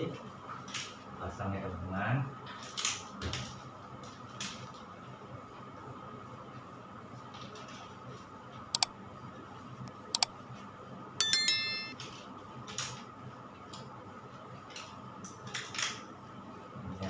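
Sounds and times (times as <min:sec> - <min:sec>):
bright metallic ding: 0:11.2 - 0:12.0.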